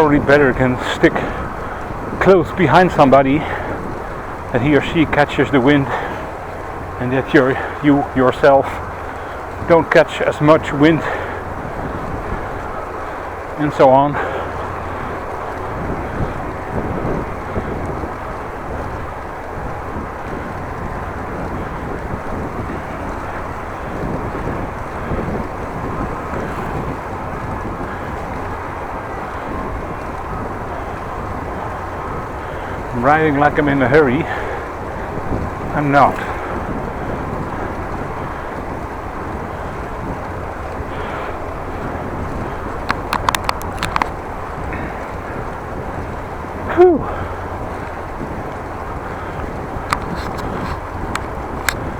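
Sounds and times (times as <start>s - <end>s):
wind rushing over microphone: 0.0s - 51.9s
sharp clicks: 42.9s - 44.2s.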